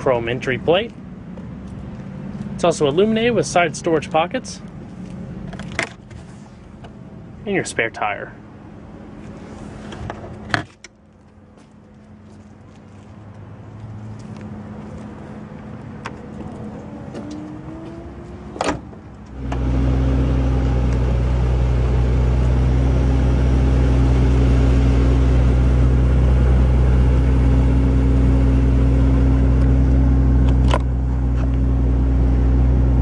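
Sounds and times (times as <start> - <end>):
car engine idling hum: 0.0 - 33.0
power trunk lid motor whine: 16.0 - 33.0
latch click: 18.6 - 18.9.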